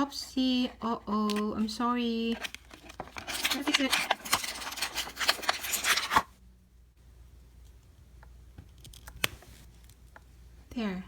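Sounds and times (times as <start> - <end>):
plastic packaging crinkling and tearing: 2.3 - 6.3.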